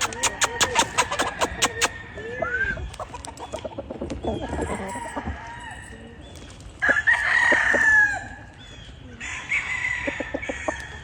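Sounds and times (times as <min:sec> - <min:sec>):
fowl calling: 0:00.0 - 0:02.0
roosters crowing: 0:00.0 - 0:06.2, 0:06.8 - 0:08.5, 0:09.1 - 0:11.0.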